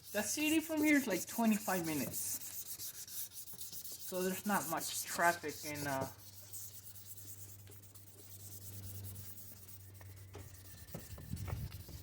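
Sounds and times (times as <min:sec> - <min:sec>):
sandpaper rubbing on plastic: 0:00.0 - 0:12.0.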